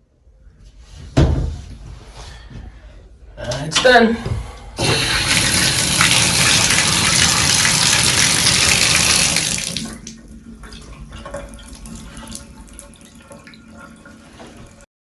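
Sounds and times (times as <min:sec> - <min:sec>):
faucet water running hard: 0:04.8 - 0:10.2
water dripping and trickling: 0:05.2 - 0:14.8.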